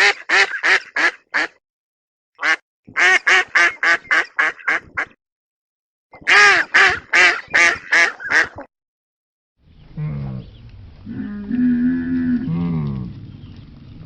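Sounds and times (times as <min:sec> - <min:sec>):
duck quacking: 0:00.0 - 0:01.6, 0:02.4 - 0:05.2, 0:06.3 - 0:08.7.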